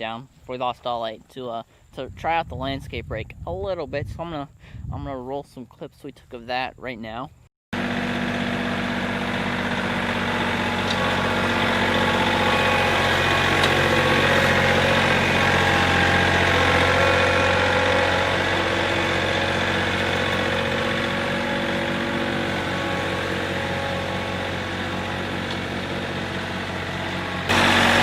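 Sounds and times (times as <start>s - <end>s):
tractor engine running: 7.8s - 28.0s.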